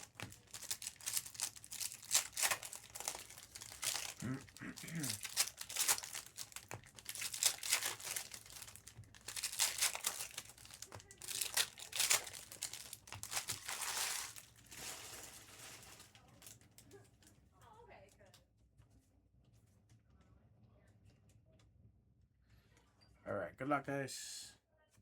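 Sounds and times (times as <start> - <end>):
plastic wrappers tearing and crinkling: 0.0 - 16.8.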